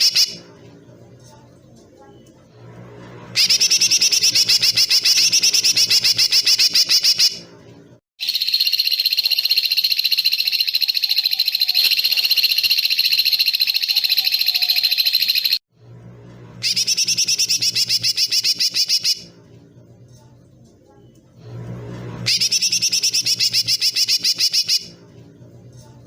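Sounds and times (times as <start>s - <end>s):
songbird buzzy trills: 3.3s - 7.4s, 8.2s - 15.6s, 16.6s - 19.4s, 21.4s - 25.3s.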